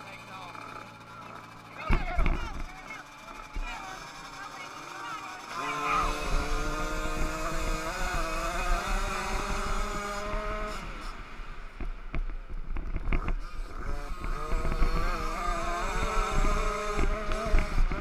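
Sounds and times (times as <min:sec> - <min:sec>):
motocross bike engines running: 0:00.0 - 0:18.0.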